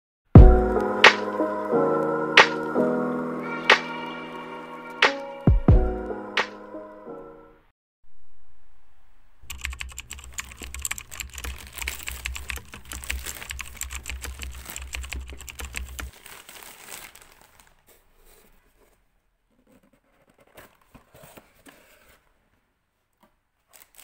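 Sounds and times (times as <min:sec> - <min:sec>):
typing on computer keyboard: 0:09.5 - 0:16.1.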